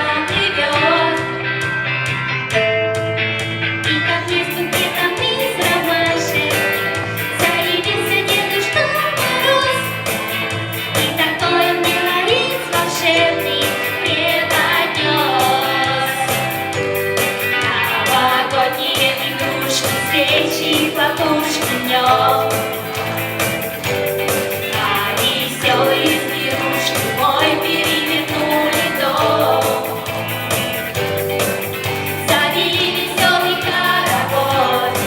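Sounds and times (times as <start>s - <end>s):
person singing: 3.8s - 31.3s, 31.9s - 35.0s
song with steady beat: 4.3s - 35.0s.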